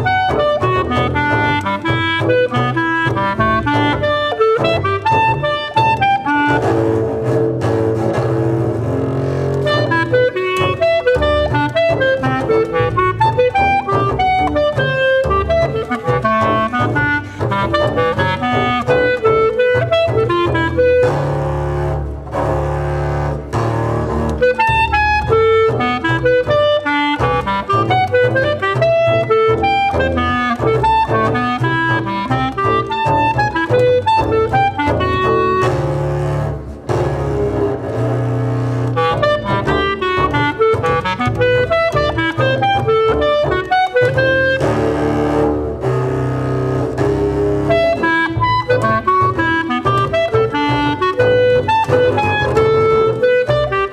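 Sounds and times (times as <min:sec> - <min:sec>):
clarinet fast runs: 0:00.0 - 0:53.9
low double bass notes: 0:00.0 - 0:53.9.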